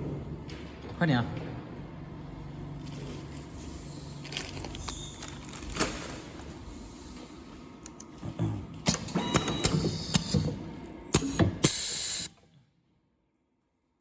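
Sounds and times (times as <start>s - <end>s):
burst of hissing air: 11.6s - 12.3s.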